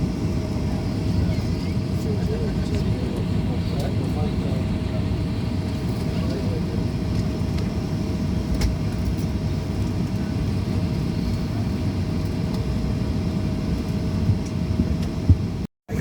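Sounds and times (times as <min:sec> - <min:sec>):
low cabin rumble: 0:00.0 - 0:16.0
mid-pitched hum: 0:00.0 - 0:16.0.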